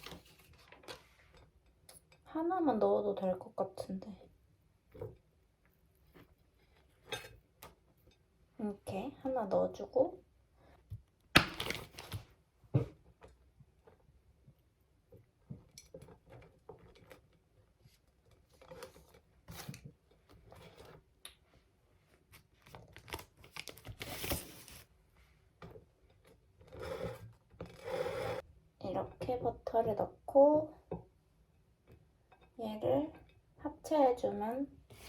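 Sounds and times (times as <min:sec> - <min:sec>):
food wrapping crinkling: 0:22.5 - 0:24.9.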